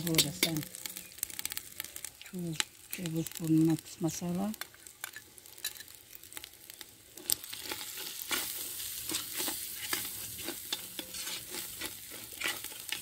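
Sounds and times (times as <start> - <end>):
onions sizzling in oil: 0.0 - 13.0
metal spoon scraping pot: 9.1 - 13.0.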